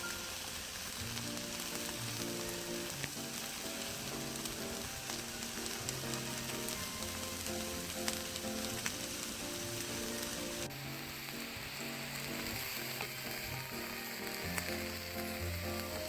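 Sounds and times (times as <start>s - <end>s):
food sizzling on a grill: 0.0s - 16.0s
soft background music: 0.0s - 16.0s.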